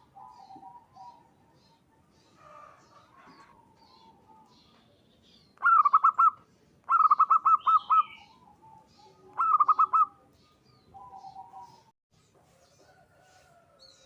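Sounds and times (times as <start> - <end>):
dove cooing: 0.0 - 4.7, 5.6 - 11.9.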